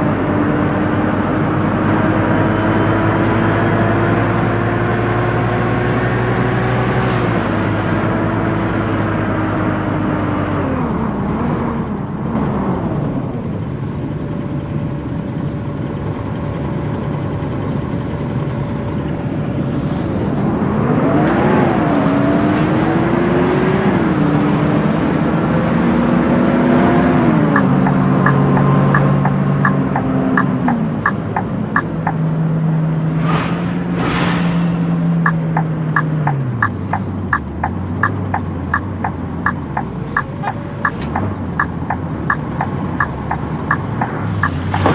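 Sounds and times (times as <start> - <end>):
bus engine running: 0.0 - 44.9
fast regular clicking: 27.5 - 32.2, 35.2 - 44.9.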